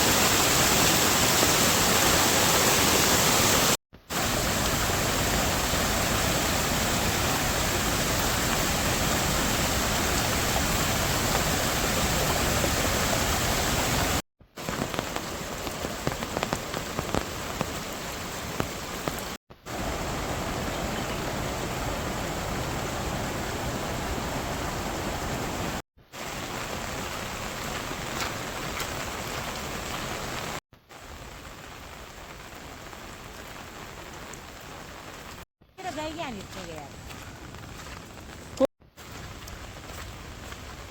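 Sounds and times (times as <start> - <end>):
steady rain falling: 0.0 - 40.9
raindrops tapping on surface: 14.5 - 19.4, 26.4 - 31.1.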